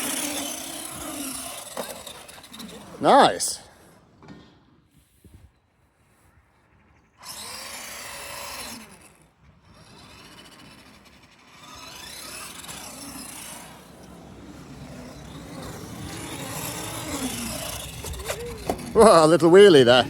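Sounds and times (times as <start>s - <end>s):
toy truck electric motor whining: 0.0s - 3.6s, 7.1s - 20.0s
tyres running on concrete: 0.0s - 4.4s, 7.2s - 20.0s.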